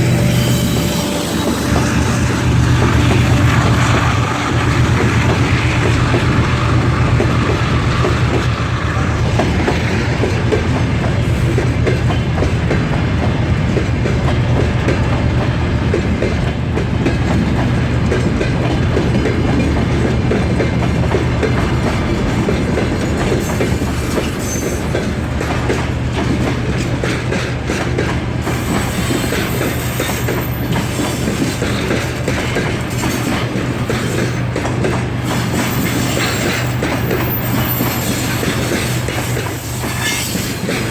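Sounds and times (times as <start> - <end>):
train low rumble: 0.0 - 40.9.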